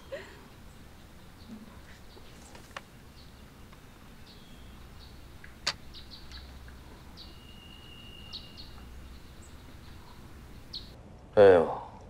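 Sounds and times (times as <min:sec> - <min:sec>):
small birds chirping: 0:00.0 - 0:11.0
low background rumble: 0:00.0 - 0:11.4
whistle-like bird note: 0:07.2 - 0:08.7.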